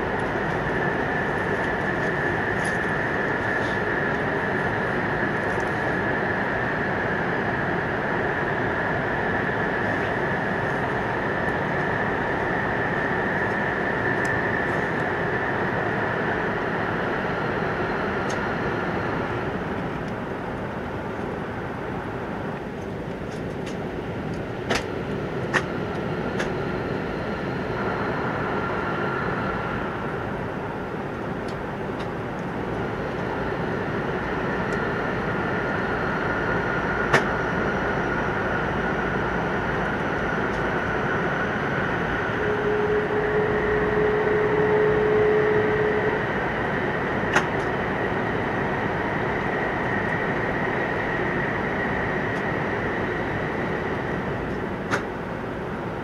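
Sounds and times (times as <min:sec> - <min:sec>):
steady hum: 0:00.0 - 0:56.0
train wheels on rail: 0:19.2 - 0:56.0.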